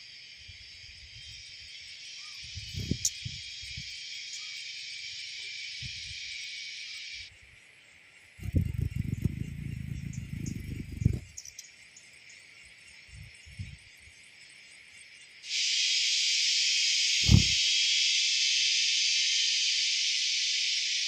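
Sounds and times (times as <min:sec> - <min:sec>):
high-pitched insect drone: 0:00.0 - 0:21.0
faint hiss: 0:12.8 - 0:21.0
low thump: 0:17.2 - 0:17.6.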